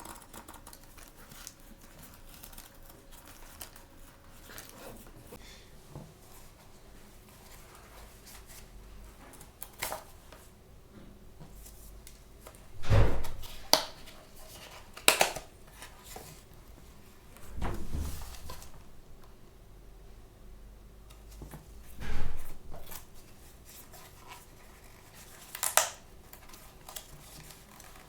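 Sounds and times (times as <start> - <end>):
thump: 12.8 - 13.6, 17.4 - 19.0, 21.9 - 23.0.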